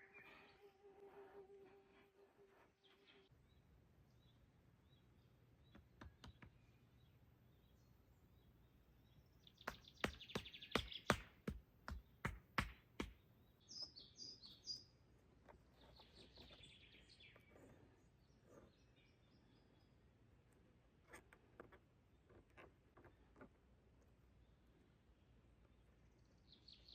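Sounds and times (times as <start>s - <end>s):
bird chirps and calls: 4.2s - 12.2s, 13.2s - 15.0s, 15.7s - 20.0s, 25.6s - 26.9s.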